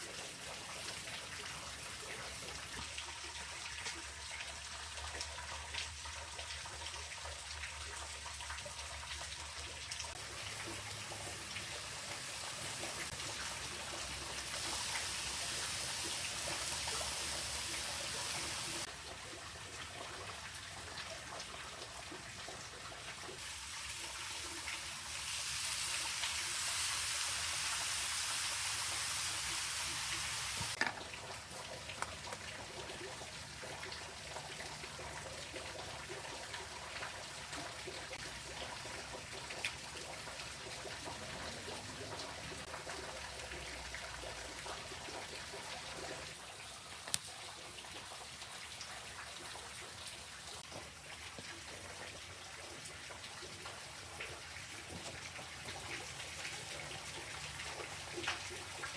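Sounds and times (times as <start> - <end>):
running water hiss: 10.1 - 18.9, 23.4 - 30.9.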